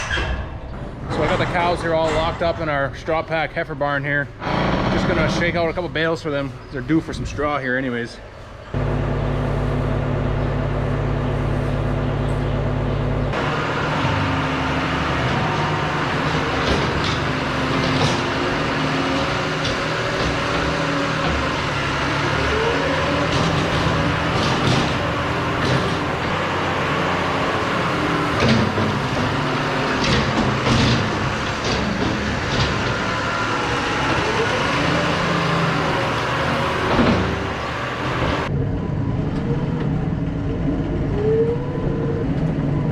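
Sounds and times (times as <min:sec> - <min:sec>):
farm machine engine running: 0:04.4 - 0:05.8, 0:08.8 - 0:38.9.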